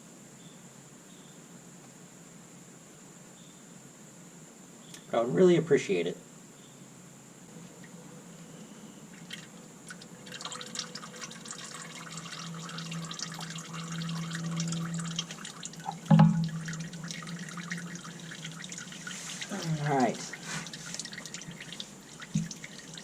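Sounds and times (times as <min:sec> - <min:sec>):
oil dripping into pan: 0:09.2 - 0:23.0.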